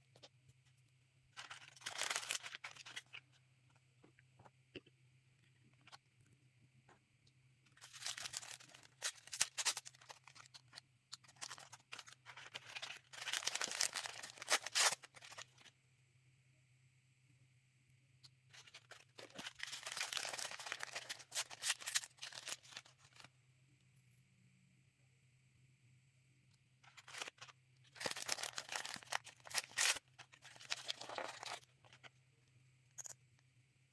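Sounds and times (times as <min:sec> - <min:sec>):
plastic packaging tearing and crinkling: 0:01.4 - 0:03.2, 0:07.8 - 0:15.7, 0:18.5 - 0:23.3, 0:26.8 - 0:32.1.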